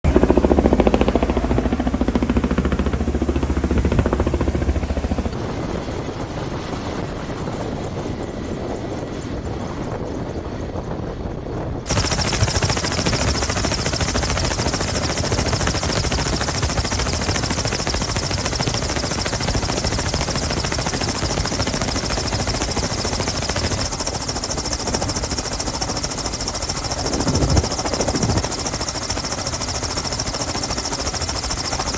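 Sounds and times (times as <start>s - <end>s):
rapid mechanical rattle: 0.1s - 5.4s, 11.9s - 31.9s.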